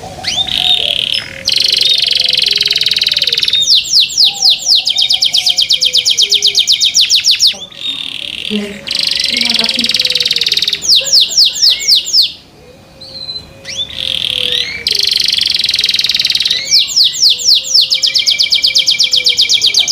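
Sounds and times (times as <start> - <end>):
canary singing: 0.0 - 19.9.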